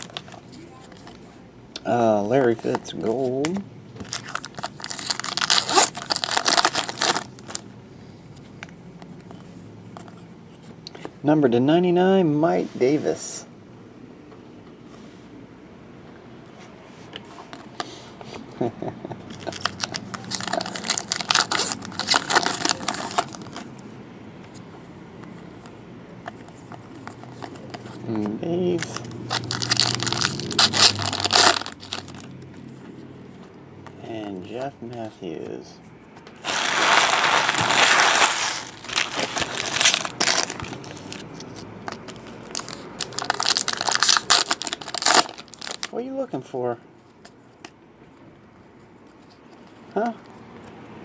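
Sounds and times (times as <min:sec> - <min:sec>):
card pack wrapper crinkling and tearing: 0:00.0 - 0:00.4, 0:04.0 - 0:07.6, 0:19.3 - 0:23.8, 0:26.9 - 0:32.3, 0:36.4 - 0:46.0.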